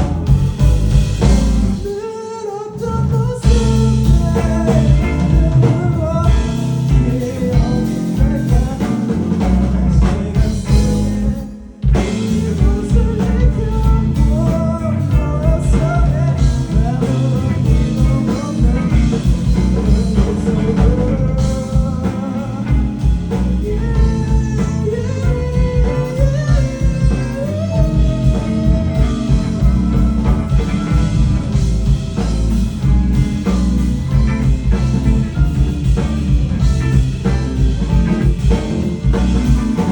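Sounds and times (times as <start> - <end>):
live rock band: 0.0 - 39.9
person singing: 1.2 - 39.9.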